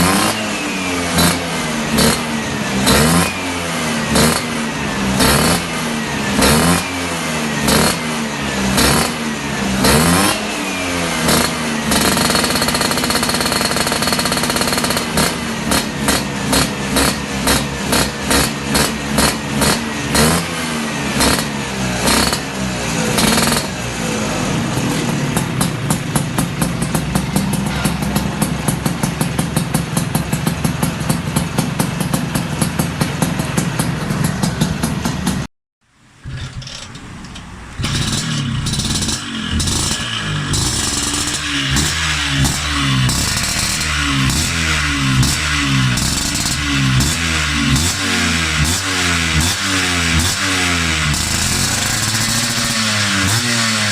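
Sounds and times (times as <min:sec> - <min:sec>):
scooter engine revving: 0:00.0 - 0:35.5, 0:36.1 - 0:53.9
crackly exhaust popping: 0:36.0 - 0:47.9.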